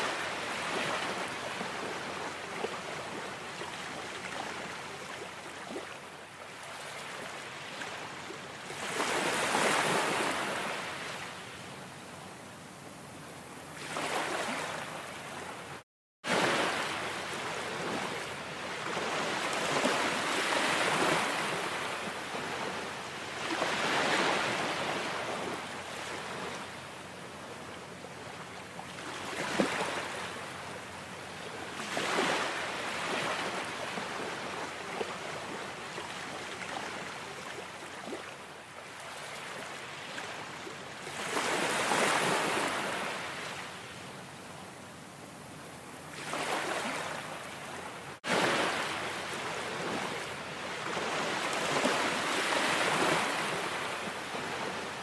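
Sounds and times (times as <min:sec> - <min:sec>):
ocean waves breaking on shore: 0:00.0 - 0:12.2, 0:12.8 - 0:55.0.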